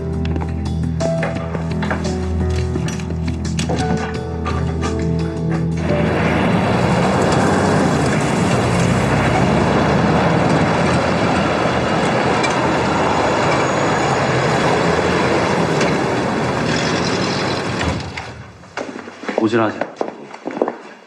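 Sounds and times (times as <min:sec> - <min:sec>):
music: 0:00.0 - 0:09.8
vehicle engine rumbling: 0:00.0 - 0:18.8.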